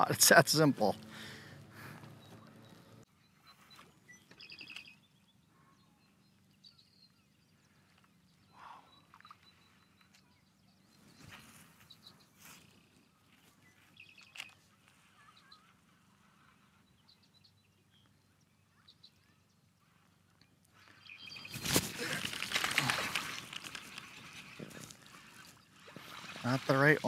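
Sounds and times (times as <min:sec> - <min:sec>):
faint high bird chirps: 0:02.0 - 0:21.9.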